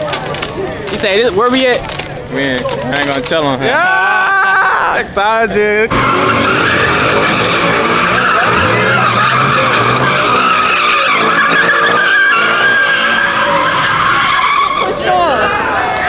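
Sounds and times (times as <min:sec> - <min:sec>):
car engine at high revs: 0:05.9 - 0:14.8
tyre squeal: 0:05.9 - 0:15.9.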